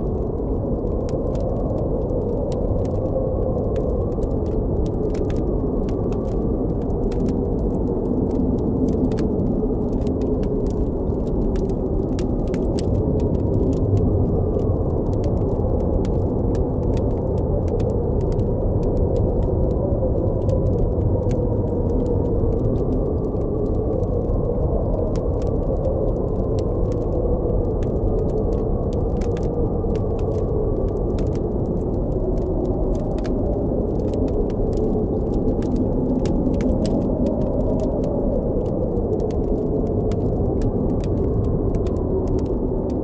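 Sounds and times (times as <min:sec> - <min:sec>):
blizzard wind moaning: 0:00.0 - 0:43.0
campfire crackling: 0:00.0 - 0:43.0.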